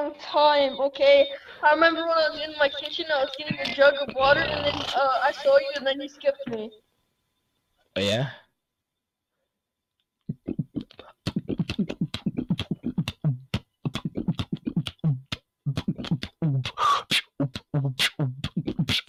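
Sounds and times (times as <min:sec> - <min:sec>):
person beatboxing: 0:10.3 - 0:19.0.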